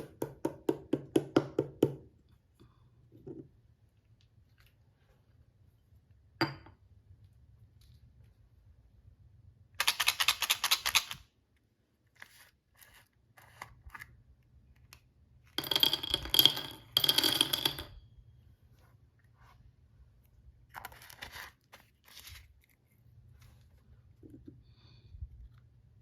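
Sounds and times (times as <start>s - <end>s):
plastic toy clicks: 9.8s - 11.2s.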